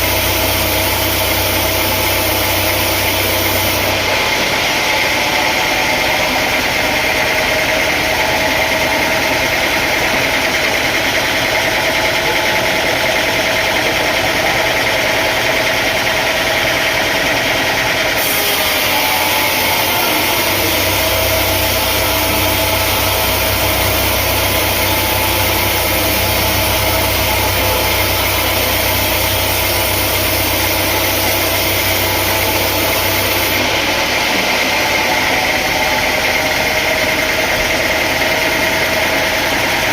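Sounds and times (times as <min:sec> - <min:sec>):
sawmill machinery engine running: 0:00.0 - 0:39.9
deep low hum: 0:20.2 - 0:33.6.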